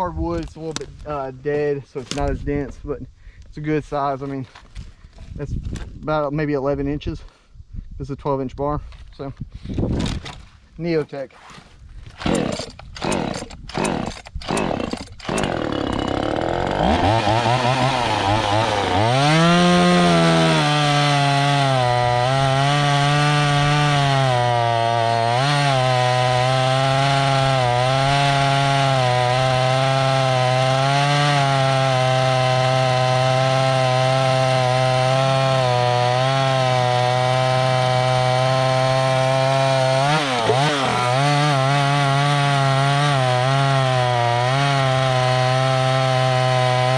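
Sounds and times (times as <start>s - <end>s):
chainsaw engine cutting log: 12.1s - 46.9s
starter cord pulls: 12.2s - 16.2s.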